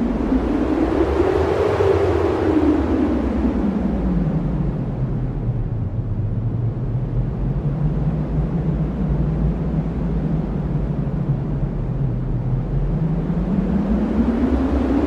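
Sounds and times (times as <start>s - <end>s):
strong wind blowing: 0.0s - 15.0s.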